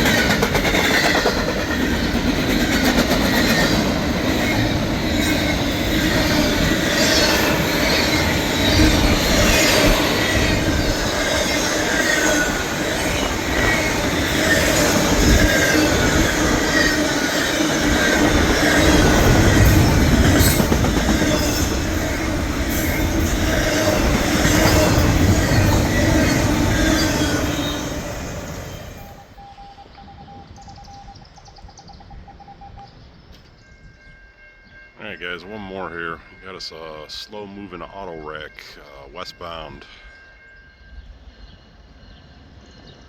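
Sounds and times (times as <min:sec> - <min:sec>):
train cars rumbling and clattering: 0:00.0 - 0:29.4
train wheels squealing: 0:00.0 - 0:35.2, 0:39.8 - 0:43.0.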